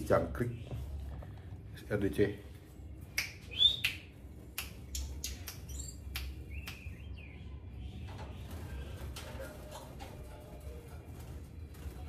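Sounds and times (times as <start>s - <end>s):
songbird chirping: 3.1s - 10.5s.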